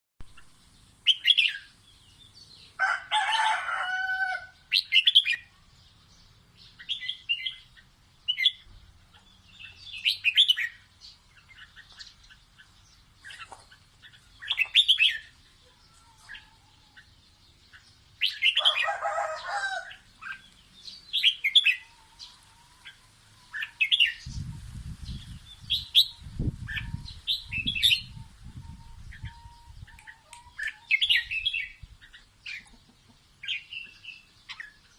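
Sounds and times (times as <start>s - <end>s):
lower bird call: 25.5s - 31.8s.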